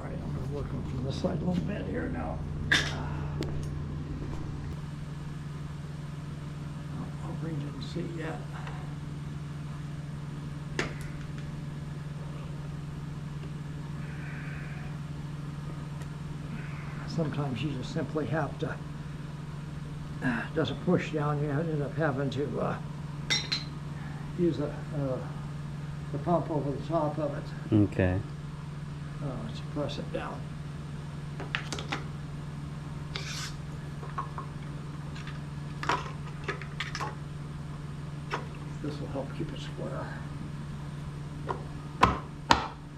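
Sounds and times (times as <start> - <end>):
low mechanical hum: 0.0 - 42.9
short scrape: 33.1 - 33.6.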